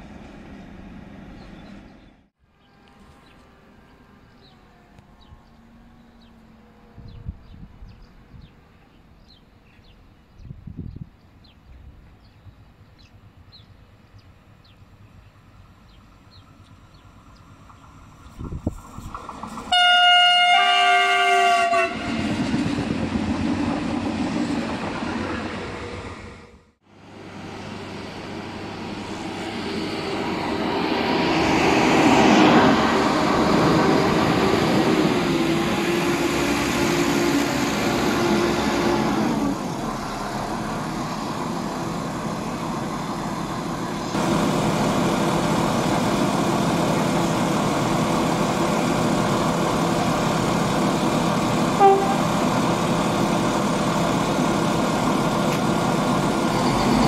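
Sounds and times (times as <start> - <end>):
train whine: 0.0 - 8.5, 12.0 - 57.0
train running past: 12.0 - 57.0
train horn blast: 19.7 - 22.4, 51.8 - 52.5
diesel engine running: 26.9 - 57.0.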